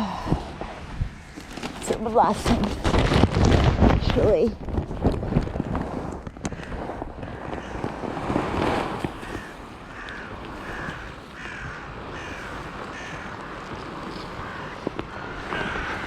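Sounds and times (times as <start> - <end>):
crow cawing: 6.4 - 8.0, 9.1 - 16.0.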